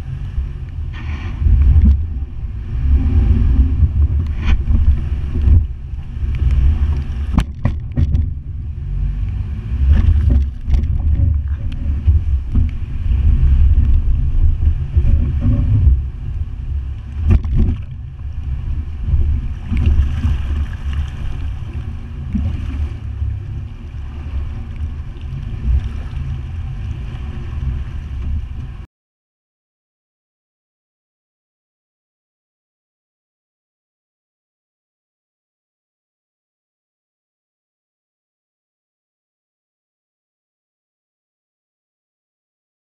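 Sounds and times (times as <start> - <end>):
truck engine rumbling: 0.0 - 25.8
water rushing and splashing: 0.0 - 28.9
sharp knocks: 7.3 - 8.3.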